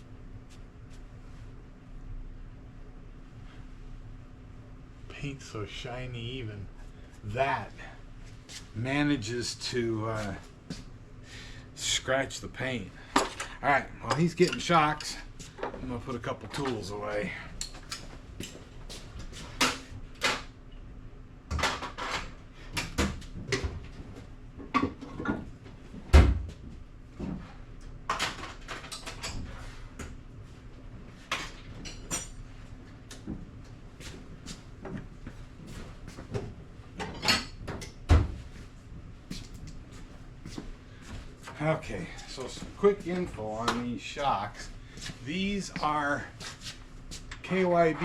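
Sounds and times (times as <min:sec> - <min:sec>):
metal tools clinking: 0:14.1 - 0:15.2.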